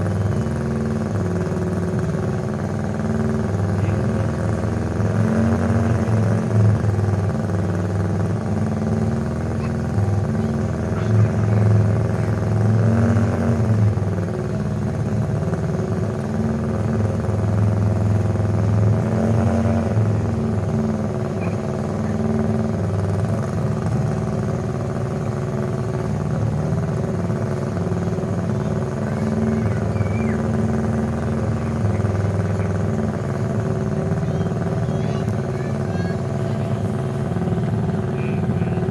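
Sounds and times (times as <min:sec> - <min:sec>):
racing engine revving: 0:00.0 - 0:38.9.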